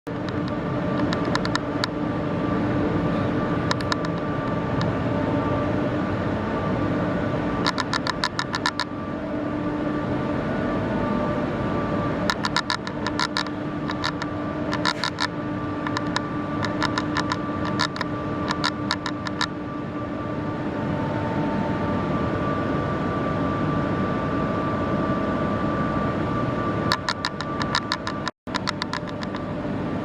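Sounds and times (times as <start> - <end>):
rapid clicking: 12.3 - 19.5, 26.9 - 29.4.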